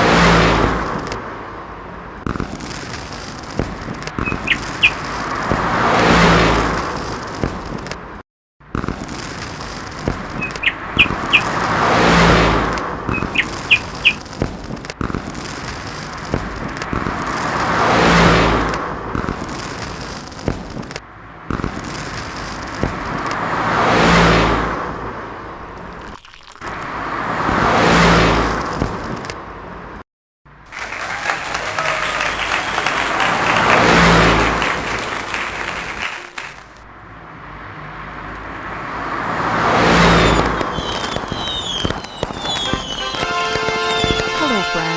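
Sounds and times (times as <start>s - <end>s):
cars passing on a road: 0.0s - 44.9s
short high chirps: 4.2s - 5.0s, 10.4s - 11.5s, 13.1s - 14.2s, 40.2s - 44.8s.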